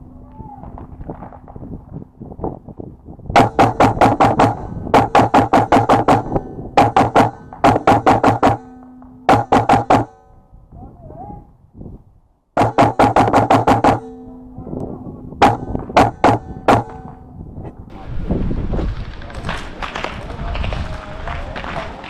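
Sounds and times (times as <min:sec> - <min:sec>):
airsoft gun firing: 0:03.4 - 0:08.7, 0:09.3 - 0:10.2, 0:12.6 - 0:14.2.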